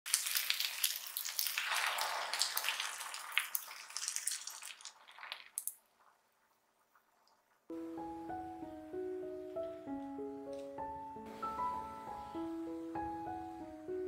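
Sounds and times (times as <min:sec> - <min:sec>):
chicken sizzling in a frying pan: 0:00.1 - 0:04.8.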